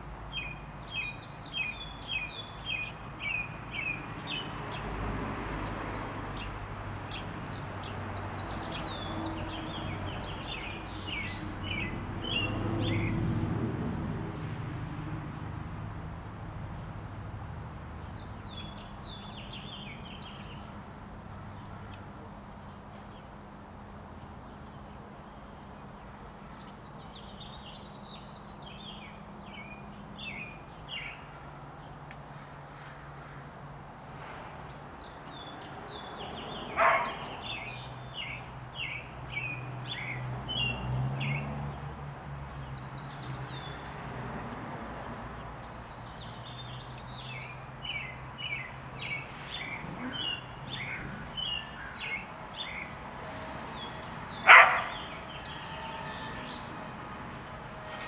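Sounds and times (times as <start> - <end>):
dog barking: 36.7 - 37.3, 54.4 - 55.2
robins singing: 46.5 - 56.9.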